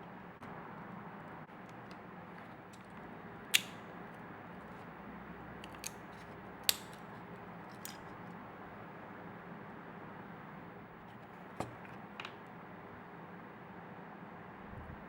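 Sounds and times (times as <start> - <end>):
small parts clicking: 2.7 - 3.8, 5.6 - 7.1.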